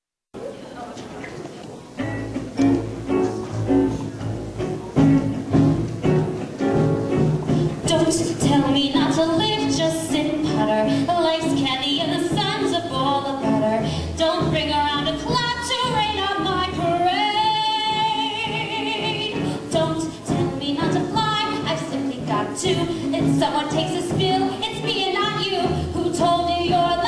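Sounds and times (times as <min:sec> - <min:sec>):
instrumental accompaniment: 0:01.9 - 0:27.0
woman singing show tune: 0:07.8 - 0:27.0.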